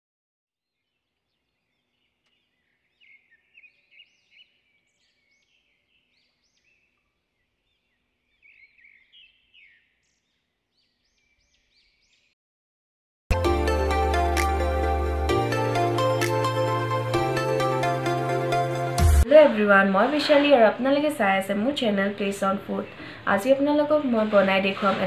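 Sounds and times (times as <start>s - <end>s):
faint bird chirps: 1.6s - 12.3s.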